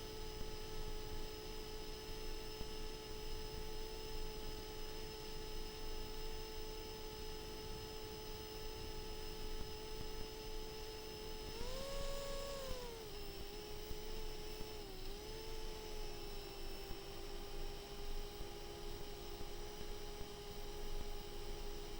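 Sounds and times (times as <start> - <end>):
quadcopter motors whining: 9.8 - 17.8.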